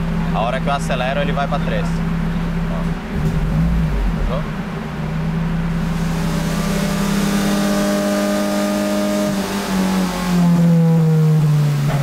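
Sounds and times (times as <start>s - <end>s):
car engine revving: 3.0s - 12.0s.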